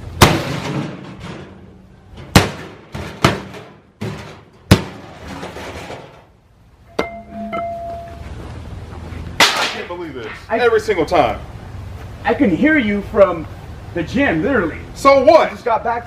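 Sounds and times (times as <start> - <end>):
sharp crashing bangs: 0.0 - 6.3, 9.4 - 9.9
brief steady tone: 6.9 - 8.4.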